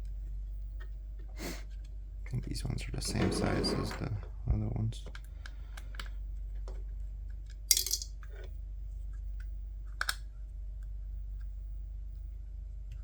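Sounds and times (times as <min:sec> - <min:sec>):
steady low hum: 0:00.0 - 0:13.0
small parts clicking on work surface: 0:07.7 - 0:08.5.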